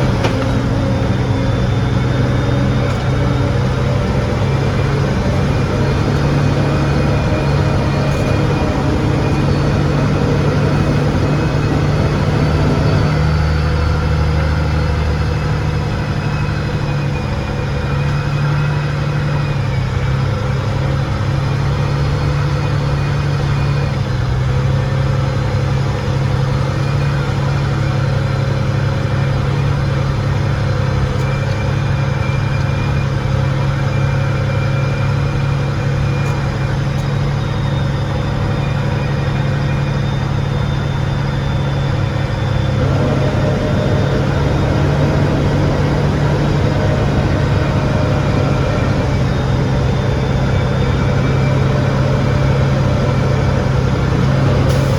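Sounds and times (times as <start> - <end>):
heavy engine running steadily: 0.0 - 54.9
faint high whines: 30.5 - 54.9.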